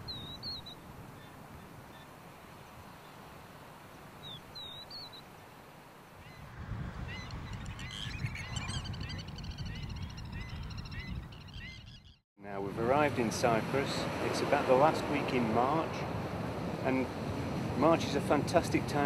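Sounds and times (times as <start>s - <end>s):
bird chirping call: 4.2s - 5.3s, 7.1s - 12.2s
flock of birds calling: 7.1s - 12.2s.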